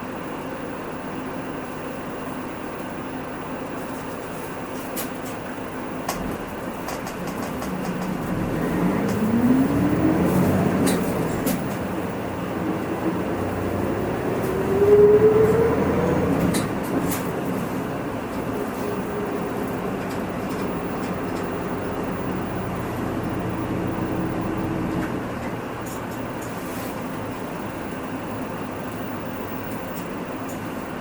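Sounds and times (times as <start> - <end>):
bus diesel engine accelerating: 0.0 - 31.0
interior rattles and clicks: 4.9 - 23.0, 23.9 - 26.7.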